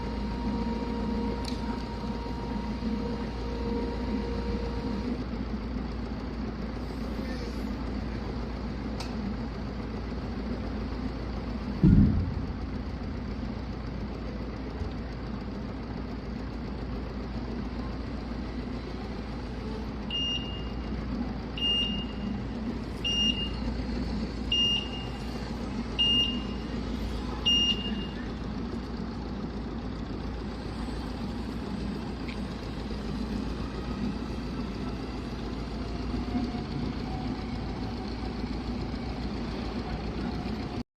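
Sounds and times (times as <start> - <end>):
forklift warning beeps: 0.0 - 5.1, 20.0 - 23.7, 24.4 - 28.4
steady low hum: 0.0 - 40.8
heavy thump: 11.8 - 13.2.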